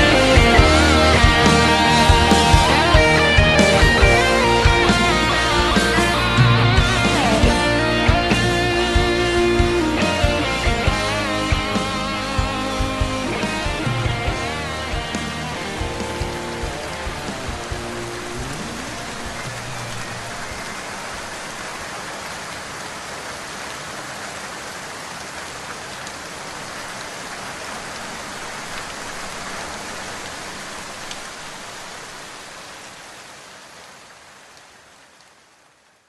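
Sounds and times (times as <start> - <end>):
steady rain hiss: 0.0 - 36.0
faint raindrop ticks: 25.1 - 36.0.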